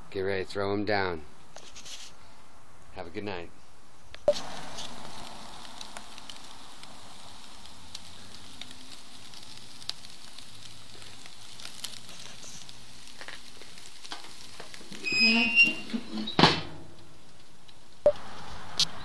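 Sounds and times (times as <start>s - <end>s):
sharp pops: 4.2s - 7.0s
steaks sizzling on a grill: 4.3s - 16.2s.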